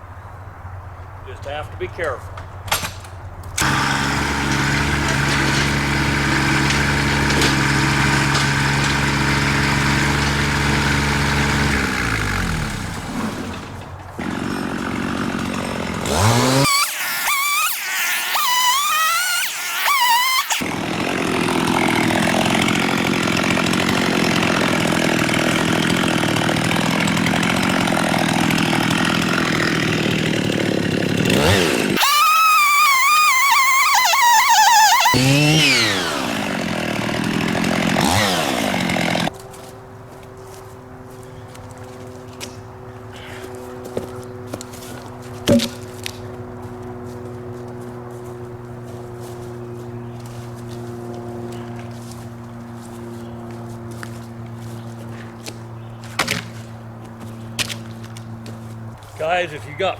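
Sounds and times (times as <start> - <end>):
tractor diesel engine running: 3.6 - 16.7.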